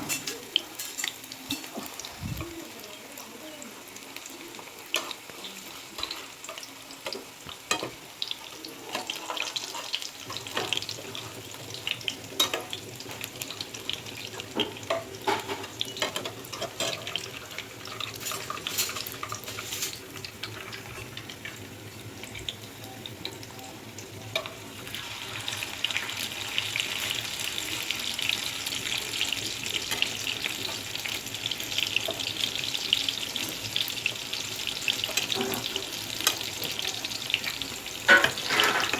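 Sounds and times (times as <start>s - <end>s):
oil sizzling and popping in a pan: 0.0s - 38.9s.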